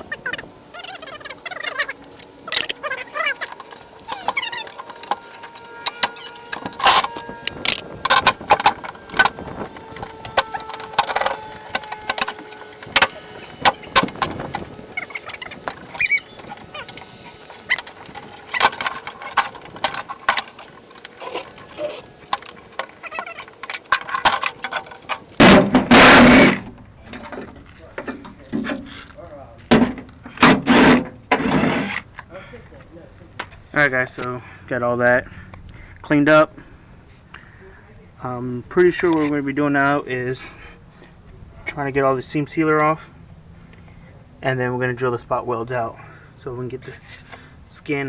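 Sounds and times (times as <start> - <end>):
clicks and metallic clatter: 1.2 - 32.3.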